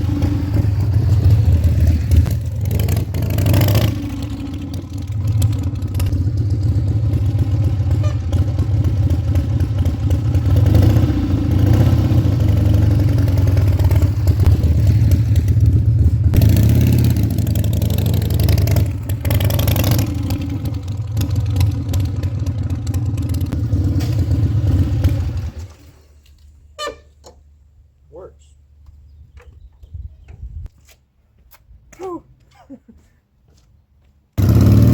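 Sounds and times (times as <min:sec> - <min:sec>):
motorcycle engine revving: 0:00.0 - 0:25.9, 0:34.4 - 0:34.9.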